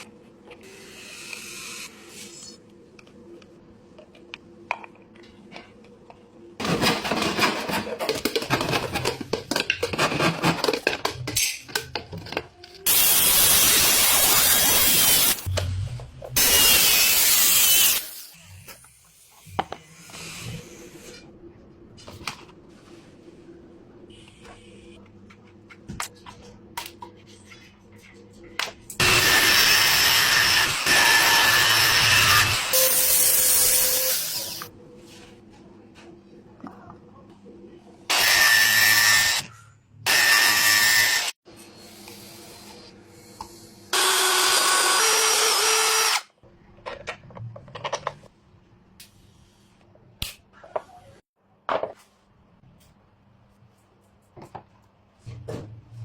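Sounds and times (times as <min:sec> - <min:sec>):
power tool running: 0:29.0 - 0:34.7, 0:43.9 - 0:46.3.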